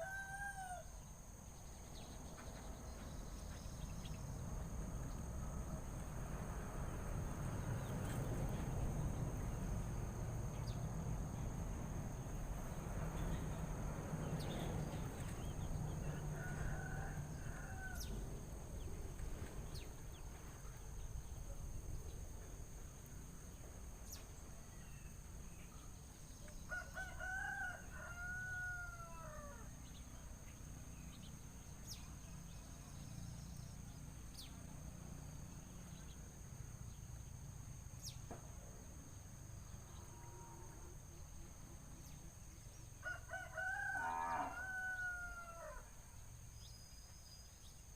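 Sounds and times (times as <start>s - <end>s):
rooster crowing: 0.0s - 1.0s, 15.4s - 18.3s, 26.7s - 29.7s, 43.0s - 46.0s.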